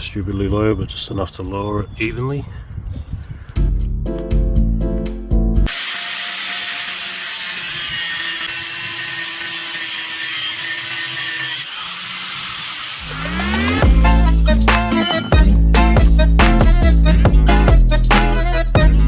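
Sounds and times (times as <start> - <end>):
background music: 3.6 - 5.7, 13.1 - 19.0
angle grinder cutting steel: 5.7 - 17.2.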